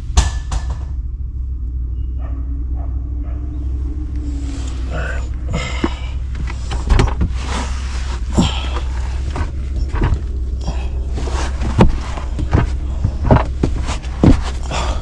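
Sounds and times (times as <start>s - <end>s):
steady low hum: 0.0s - 15.0s
person crawling knocks and thumps: 4.2s - 15.0s.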